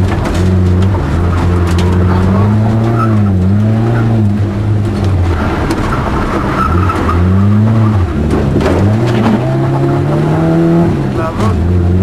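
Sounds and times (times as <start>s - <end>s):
car engine revving from inside: 7.0s - 12.0s.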